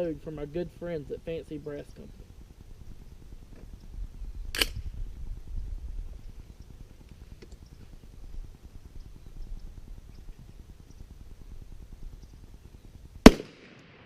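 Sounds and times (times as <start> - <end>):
wind rumble on microphone: 0.0 - 13.3
rifle shot: 4.5 - 4.8, 13.2 - 14.0.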